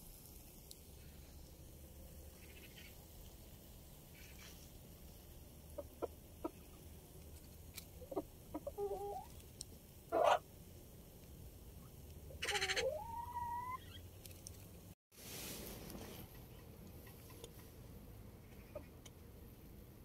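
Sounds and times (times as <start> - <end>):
farmyard bird calls: 10.1 - 10.4, 12.3 - 14.1, 18.4 - 19.0.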